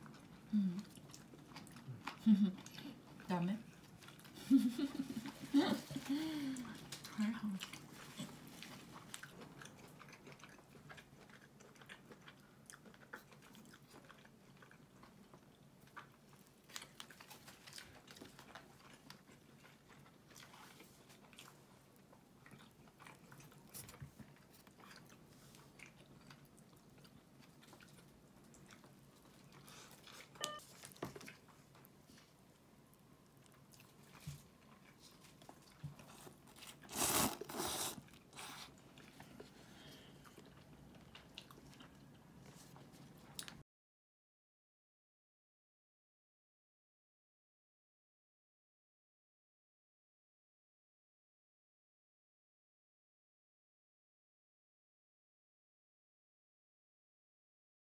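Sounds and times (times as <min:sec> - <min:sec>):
chewing and biting food: 0:00.0 - 0:04.4, 0:05.0 - 0:43.6.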